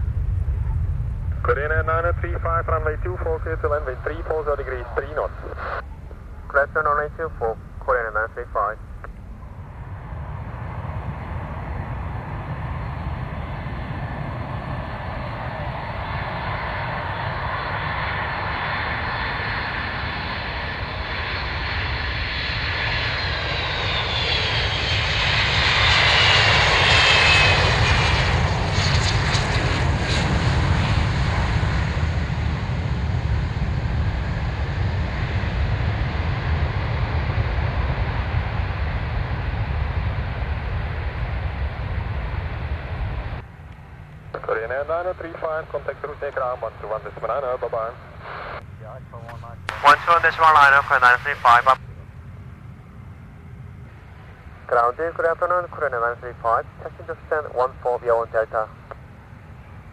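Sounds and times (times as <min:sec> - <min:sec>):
jet engine whine: 0:00.0 - 0:59.9
jet engines landing: 0:00.0 - 0:59.9.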